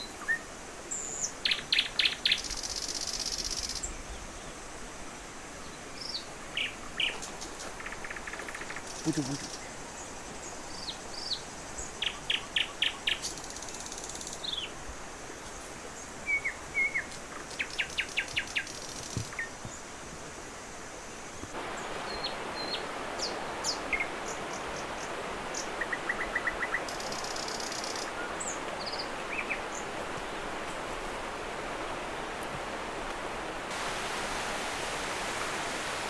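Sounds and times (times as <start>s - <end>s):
steady outdoor hiss: 0.0s - 36.0s
birds singing and calling: 5.7s - 14.8s, 16.0s - 19.9s, 21.6s - 30.4s.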